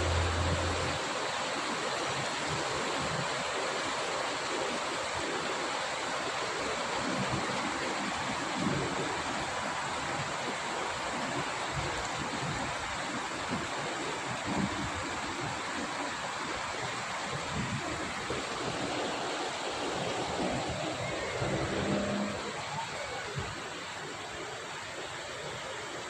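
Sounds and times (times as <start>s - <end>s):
low hum: 0.0s - 1.0s, 20.4s - 22.6s
rain falling: 0.0s - 2.0s, 6.3s - 26.0s.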